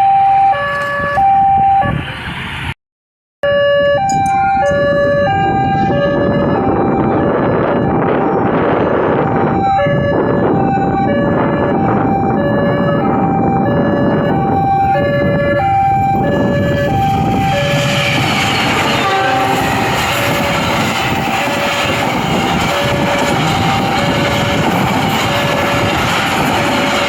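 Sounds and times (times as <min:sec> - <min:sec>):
level-crossing alarm two-tone: 0:00.0 - 0:02.0, 0:03.4 - 0:27.0
train wheels on rails: 0:15.8 - 0:27.0.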